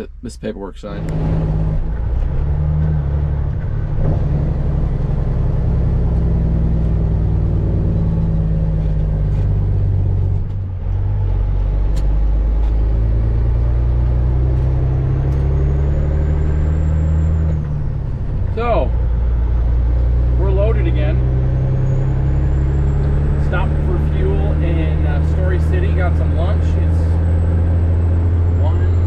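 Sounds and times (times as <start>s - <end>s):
truck diesel engine running: 16.9s - 29.0s.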